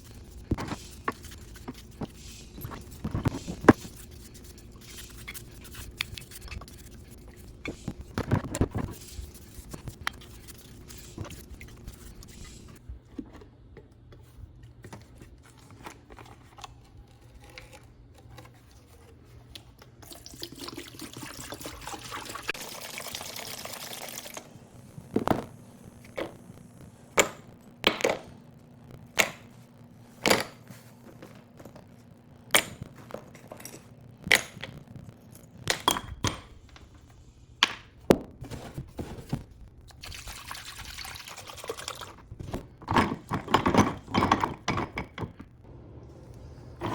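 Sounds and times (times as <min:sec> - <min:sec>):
liquid pouring and trickling: 0:20.0 - 0:24.5, 0:39.9 - 0:42.3.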